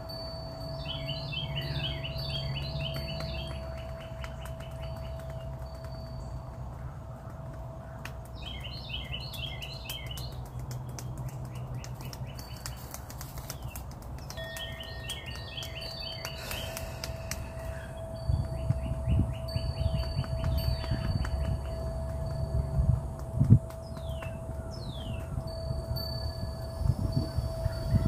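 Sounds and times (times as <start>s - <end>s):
songbird chirping: 0.1s - 28.0s
sharp clicks: 2.9s - 17.8s.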